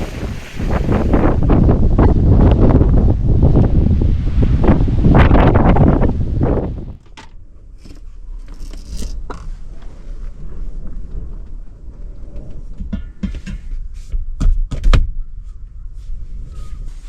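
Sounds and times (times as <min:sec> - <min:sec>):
wind buffeting van low rumble: 0:00.0 - 0:07.6
knocks and clacks of handling: 0:12.3 - 0:15.1.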